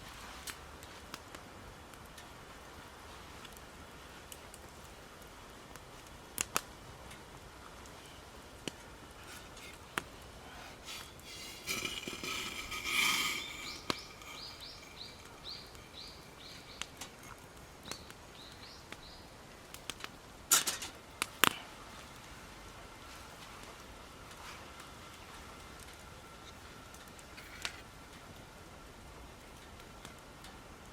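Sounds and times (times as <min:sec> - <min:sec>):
small bird chirping: 0:10.9 - 0:19.2.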